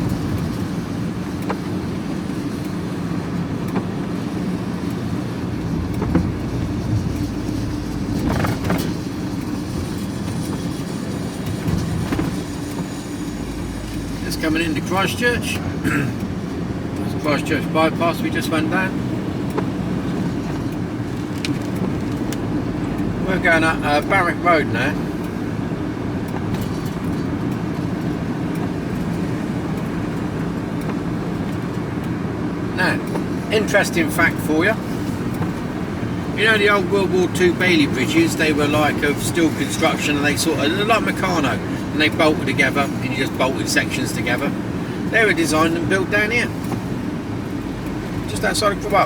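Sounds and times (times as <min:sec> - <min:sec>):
vehicle engine and road noise: 0:00.0 - 0:49.0
knocks and rattles: 0:05.8 - 0:10.5.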